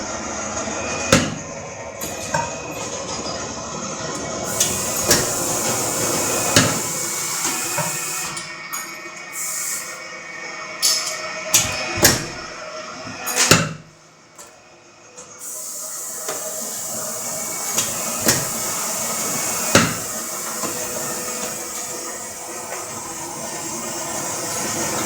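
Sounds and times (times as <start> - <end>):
punch press humming: 0.7 - 3.3, 4.0 - 8.6, 15.2 - 25.0.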